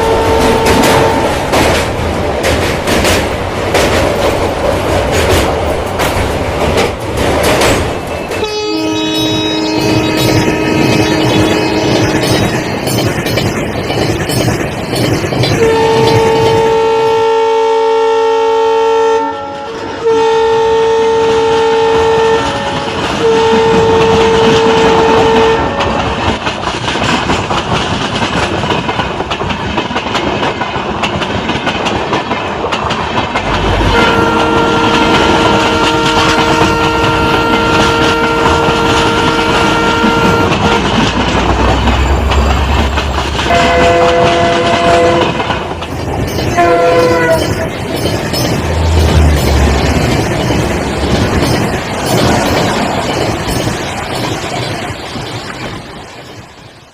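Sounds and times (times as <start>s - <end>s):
diesel locomotive horn blasts: 0.0s - 1.4s, 8.4s - 12.8s, 15.6s - 26.3s, 33.4s - 41.2s, 43.4s - 45.5s, 46.6s - 47.6s, 48.7s - 50.0s
train rumble and clickety-clack: 0.0s - 56.9s.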